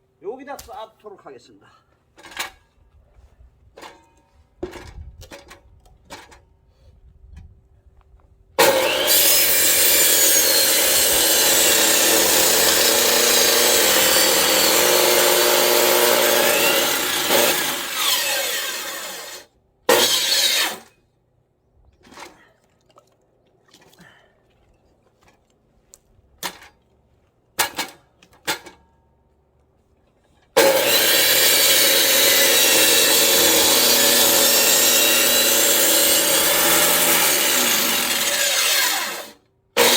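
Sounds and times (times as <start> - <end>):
electric chainsaw cutting wood: 8.6 - 20.8, 30.6 - 39.9.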